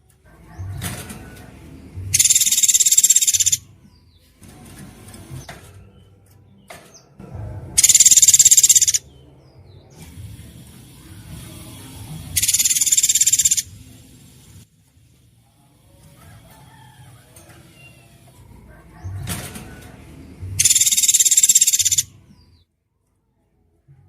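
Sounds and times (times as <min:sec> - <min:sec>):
songbird buzzing trill: 0:02.1 - 0:03.6, 0:07.8 - 0:09.0, 0:12.4 - 0:13.7, 0:20.6 - 0:22.1
soft bird chirps: 0:02.1 - 0:04.3, 0:07.8 - 0:09.1, 0:12.4 - 0:13.7, 0:20.6 - 0:22.6.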